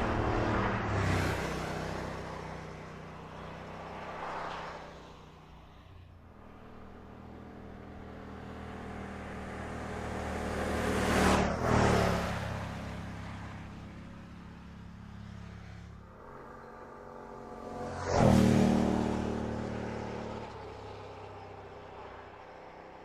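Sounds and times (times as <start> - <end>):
car driving past: 6.7 - 22.3.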